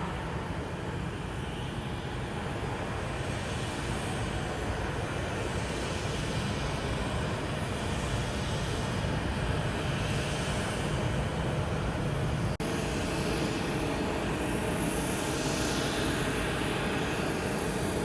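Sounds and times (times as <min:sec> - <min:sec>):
jet airliner engine noise: 0:00.0 - 0:18.0.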